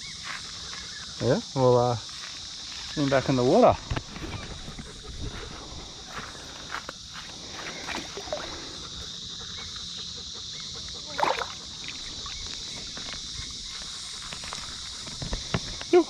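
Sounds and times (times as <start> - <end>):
water splashing: 7.7 - 8.9, 11.0 - 13.1.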